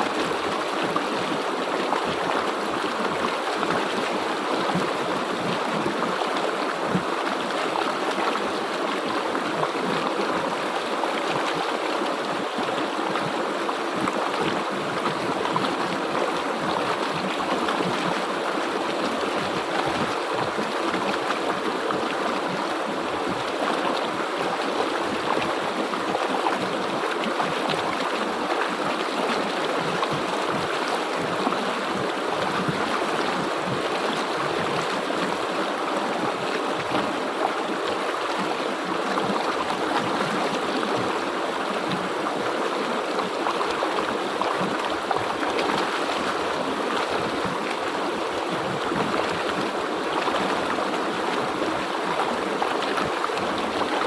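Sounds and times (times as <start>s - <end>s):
river flowing over rocks: 0.0s - 54.0s.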